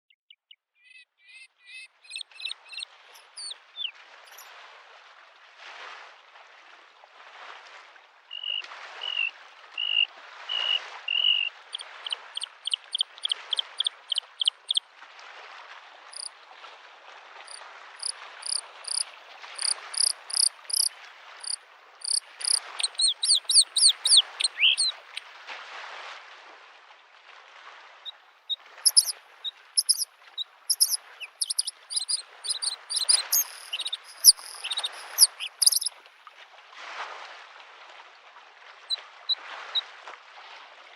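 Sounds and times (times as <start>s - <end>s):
bird singing trills: 1.7s - 4.4s, 10.6s - 14.8s, 17.5s - 19.0s, 19.6s - 25.2s, 28.9s - 29.1s, 29.8s - 30.0s, 30.7s - 35.9s
small waves lapping shore: 1.9s - 40.9s.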